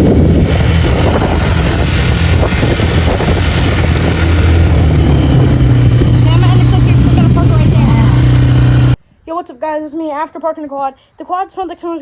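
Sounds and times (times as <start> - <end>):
atv engine running: 0.0 - 9.0.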